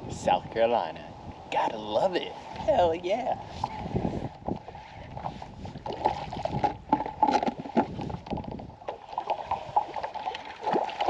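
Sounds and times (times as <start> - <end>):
water noise: 0.0 - 11.0
kayak knocks and clatter: 3.6 - 11.0.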